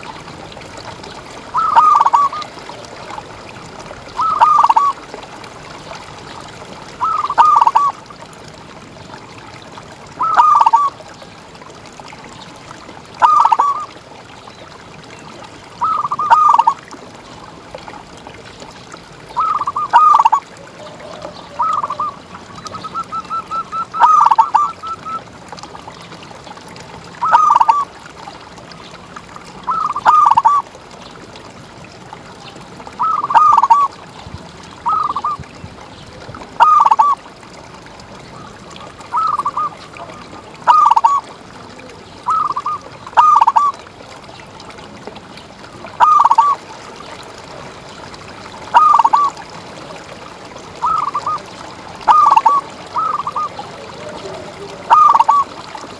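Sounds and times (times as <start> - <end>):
dove cooing: 1.5 - 2.5, 4.2 - 5.0, 7.0 - 7.9, 10.2 - 10.9, 13.2 - 13.9, 19.3 - 25.2, 27.2 - 27.8, 33.0 - 33.9, 36.6 - 37.2, 39.1 - 41.2, 42.3 - 43.7, 46.0 - 46.6, 48.7 - 49.4, 50.8 - 55.9.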